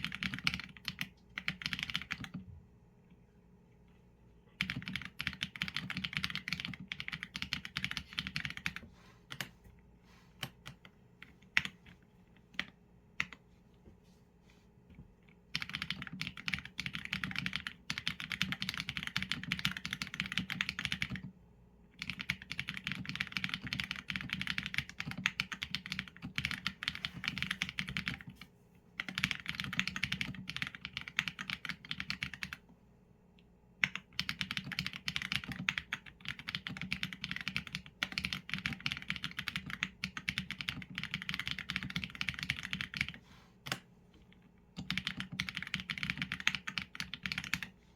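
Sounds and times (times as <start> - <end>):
typing on mechanical keyboard: 0.0 - 2.4, 4.5 - 9.5, 15.5 - 21.3, 22.0 - 28.4, 29.0 - 32.6, 33.8 - 43.8, 44.7 - 47.7.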